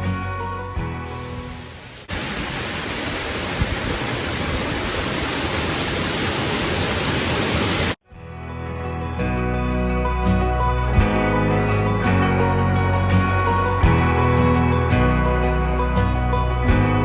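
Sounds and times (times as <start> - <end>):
background music: 0.0 - 1.8, 8.1 - 17.0
waterfall rushing: 1.0 - 8.0.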